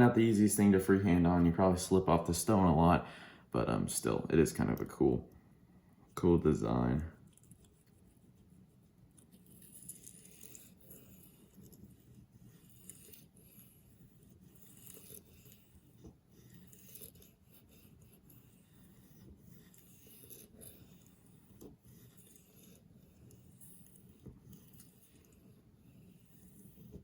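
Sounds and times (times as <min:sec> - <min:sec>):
knife rasping on sharpening stone: 0:09.2 - 0:27.0.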